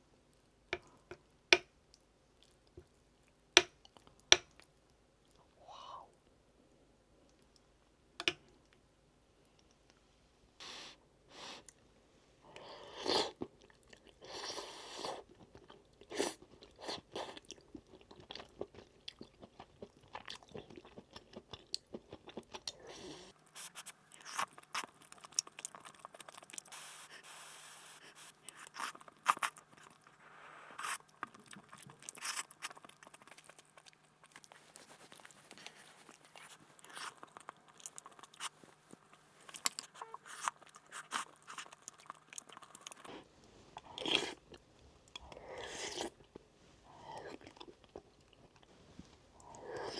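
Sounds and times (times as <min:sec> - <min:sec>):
person chewing crunchy food: 0:15.0 - 0:30.2, 0:30.8 - 0:48.7.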